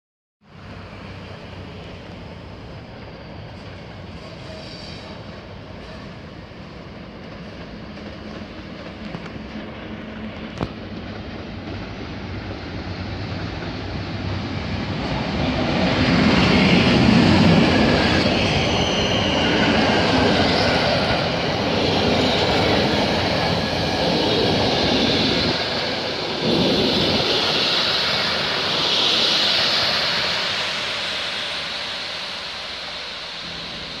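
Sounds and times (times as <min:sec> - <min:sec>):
train rumbling past: 0:00.4 - 0:34.0
high squeal of running gear: 0:02.6 - 0:06.5, 0:15.9 - 0:34.0.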